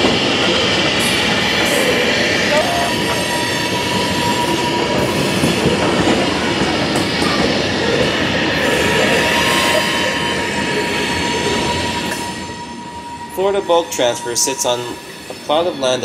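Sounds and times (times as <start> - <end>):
freight cars rumbling and rattling: 0.0 - 11.9
steel wheels squealing: 1.0 - 5.7, 8.6 - 16.0.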